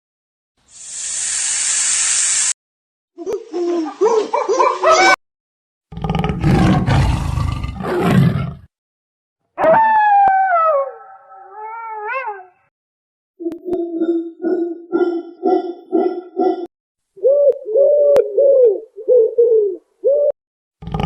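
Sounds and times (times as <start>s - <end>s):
animal low rough roar: 5.9s - 8.7s, 20.8s - 21.0s
animal yelping calls: 13.6s - 16.7s.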